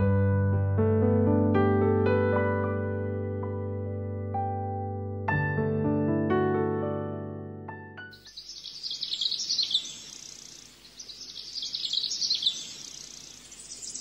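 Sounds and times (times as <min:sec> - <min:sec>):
piano music: 0:00.0 - 0:08.2
faint steady hiss: 0:08.2 - 0:14.0
songbird twittering: 0:08.2 - 0:14.0.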